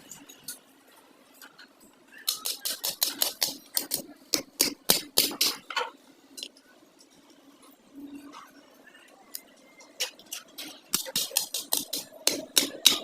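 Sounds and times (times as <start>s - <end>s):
rapid sharp taps: 2.3s - 5.6s, 10.0s - 13.0s
scattered ticks: 9.3s - 12.8s.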